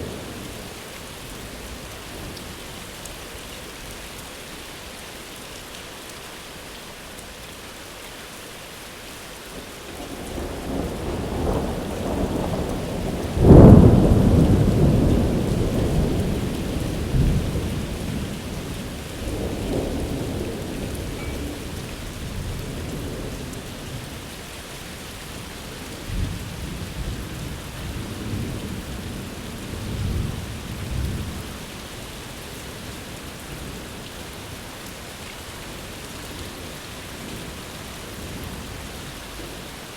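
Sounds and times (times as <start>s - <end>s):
steady rain: 0.0s - 39.9s
thunder rumbling: 10.0s - 24.2s
loud thunderclap: 10.3s - 18.3s.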